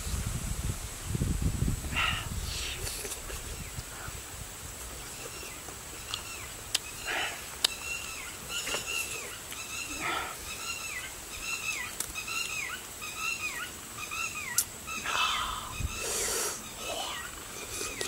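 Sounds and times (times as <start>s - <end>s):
bird calling: 5.0s - 18.0s.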